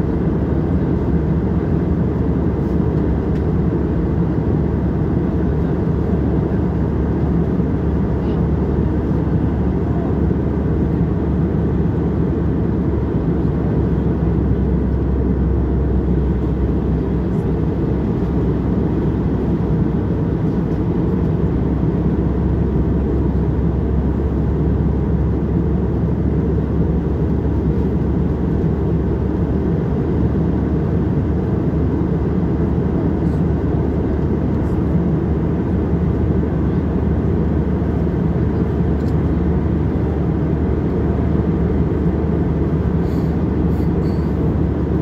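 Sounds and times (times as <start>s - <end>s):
airliner cabin engine rush: 0.0s - 45.0s.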